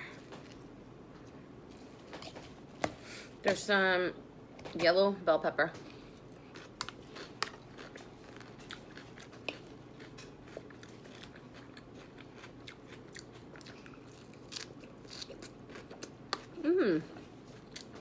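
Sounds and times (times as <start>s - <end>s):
person chewing crunchy salad: 5.9s - 18.0s.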